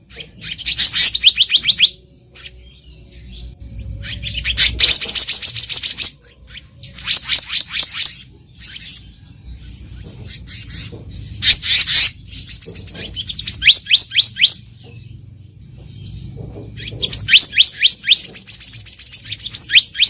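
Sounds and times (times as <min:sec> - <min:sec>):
bird rapid high sweeping notes: 0:00.2 - 0:09.8.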